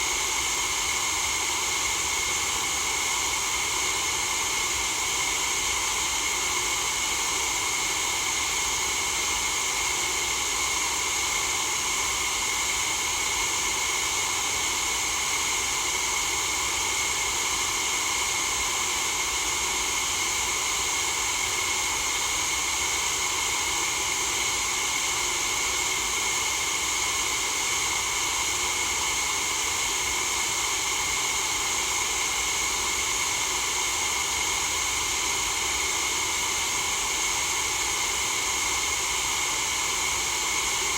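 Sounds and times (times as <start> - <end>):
steady white noise hiss: 0.0 - 3.9.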